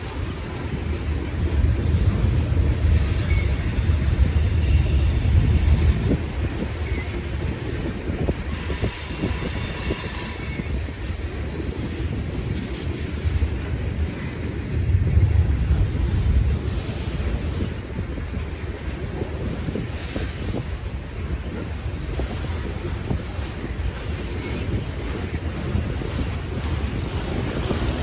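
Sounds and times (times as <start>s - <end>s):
train rumbling past: 0.0s - 28.0s
wheel squeal: 2.6s - 10.9s.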